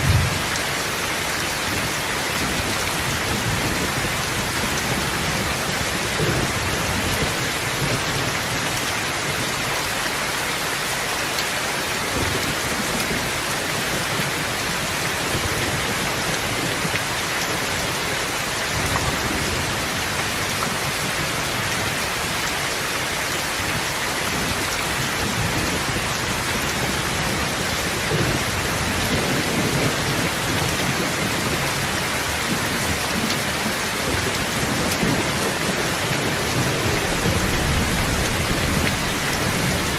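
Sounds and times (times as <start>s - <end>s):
low thunder rumbles: 0.0s - 0.8s, 1.6s - 8.9s, 24.3s - 39.9s
steady rain falling: 0.0s - 39.9s.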